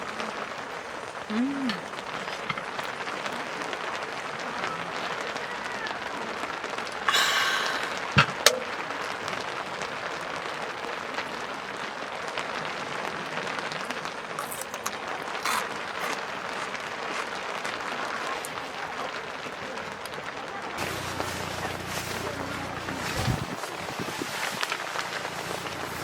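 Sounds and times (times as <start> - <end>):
rain patter: 0.0 - 26.0
hissing rush: 6.8 - 9.3, 20.8 - 26.0.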